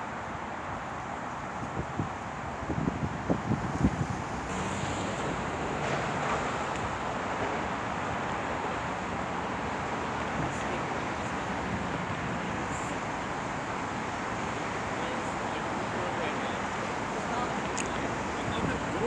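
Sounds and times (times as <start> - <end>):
wind on microphone: 1.6 - 6.9
passing vehicles rushing: 1.9 - 19.0.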